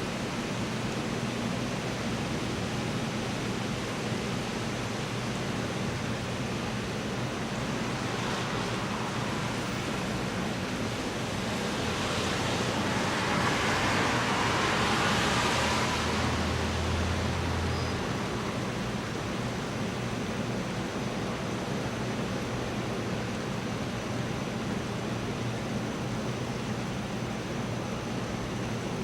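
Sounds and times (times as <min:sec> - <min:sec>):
steady rain falling: 0:00.0 - 0:29.0
vehicle passing on wet road: 0:07.9 - 0:19.0.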